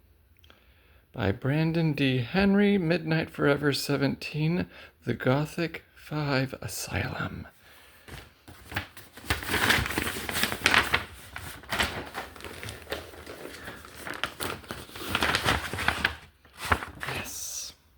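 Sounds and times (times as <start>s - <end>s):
packaging crinkling and rustling: 8.0s - 17.4s.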